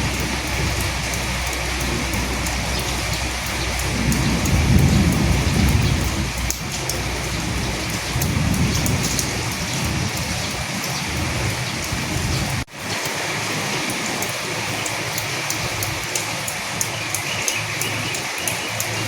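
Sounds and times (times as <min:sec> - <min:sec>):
thunder rumbling: 0:00.0 - 0:12.7
steady rain: 0:00.0 - 0:19.0.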